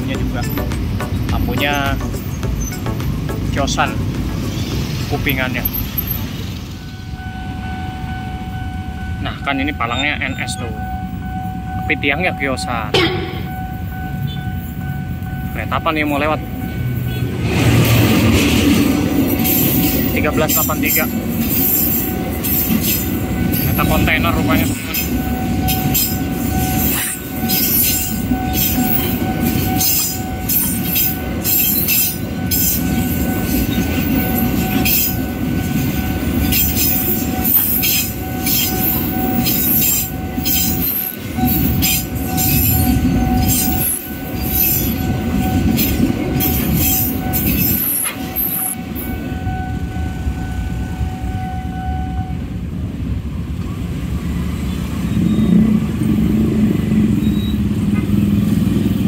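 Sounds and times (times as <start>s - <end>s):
freight train rumble: 0.0s - 59.0s
high ringing tone: 5.0s - 17.2s, 19.4s - 52.5s.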